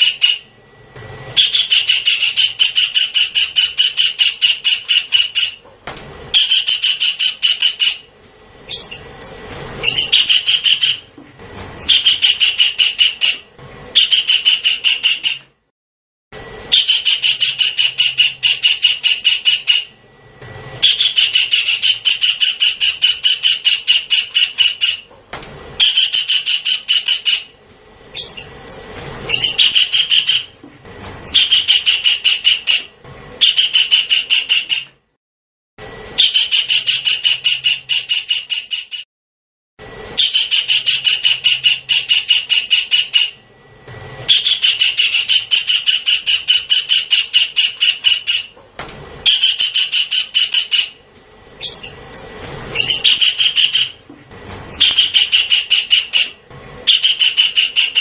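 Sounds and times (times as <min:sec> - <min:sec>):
kingfisher calling: 0:01.4 - 0:05.6, 0:06.3 - 0:08.1, 0:08.7 - 0:11.1, 0:11.8 - 0:13.4, 0:14.0 - 0:15.4, 0:16.7 - 0:19.9, 0:20.8 - 0:25.1, 0:25.8 - 0:27.5, 0:28.1 - 0:30.6, 0:31.2 - 0:34.9, 0:44.3 - 0:48.5, 0:49.2 - 0:51.0, 0:51.6 - 0:54.0, 0:54.7 - 0:58.0.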